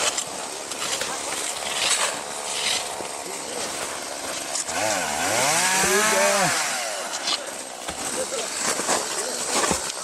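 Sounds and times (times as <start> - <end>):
chainsaw cutting and revving: 4.0 - 7.8.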